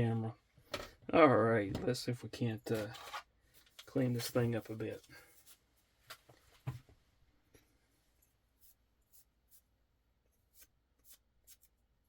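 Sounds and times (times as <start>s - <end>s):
knife blade being wiped: 10.5s - 11.8s.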